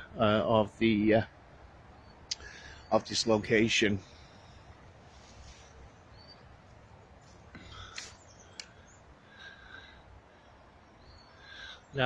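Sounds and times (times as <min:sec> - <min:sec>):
woodland ambience: 0:00.0 - 0:12.0
high bird calls: 0:01.8 - 0:12.0
sharp clicks: 0:07.9 - 0:08.8.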